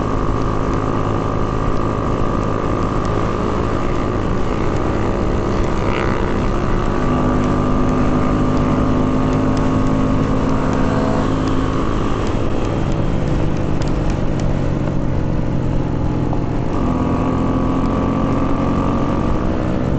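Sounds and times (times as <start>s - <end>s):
small motorcycle engines running: 0.0s - 14.4s.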